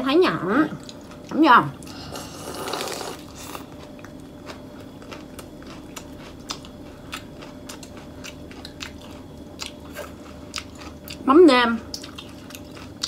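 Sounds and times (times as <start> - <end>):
chewing with wet mouth clicks: 0.8 - 1.9, 3.6 - 11.2, 11.9 - 13.0.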